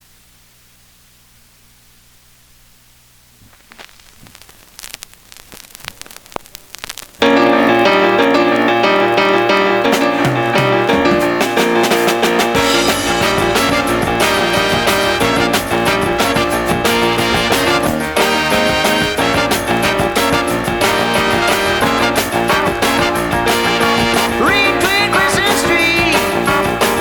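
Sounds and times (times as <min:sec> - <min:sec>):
faint hum and hiss: 0:00.0 - 0:07.2
scattered clicks: 0:03.7 - 0:07.2
pop song with piano and band: 0:07.3 - 0:27.0.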